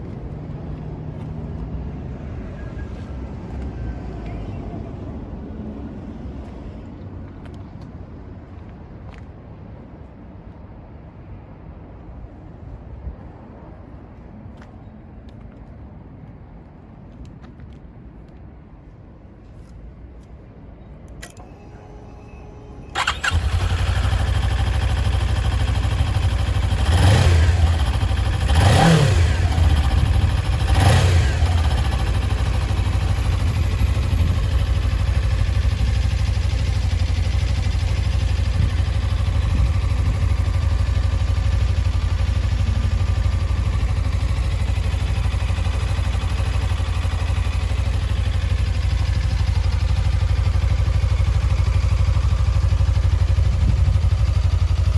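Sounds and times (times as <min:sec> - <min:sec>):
starter click and whir: 0:21.1 - 0:26.0
motorcycle engine revving and idling: 0:22.9 - 0:54.9.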